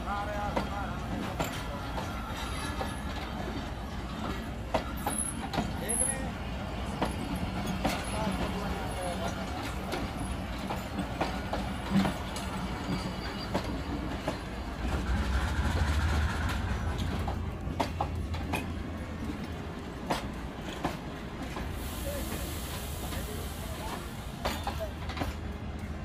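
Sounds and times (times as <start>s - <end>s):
train rumbling: 0.0s - 26.0s
wheels clicking and knocking on rails: 0.1s - 26.0s.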